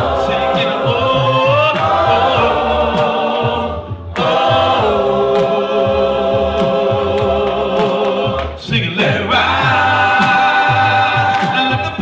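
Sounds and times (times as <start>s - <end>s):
singers holding long notes: 0.0s - 12.0s.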